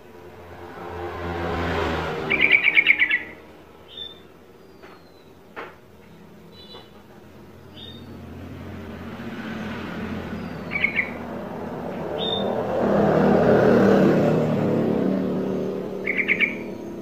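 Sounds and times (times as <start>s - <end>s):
vehicle approaching: 0.0s - 4.6s, 6.6s - 17.0s
bird chirps: 2.3s - 5.4s, 6.5s - 7.0s, 7.7s - 8.1s, 10.3s - 11.2s, 12.2s - 12.6s, 15.9s - 17.0s.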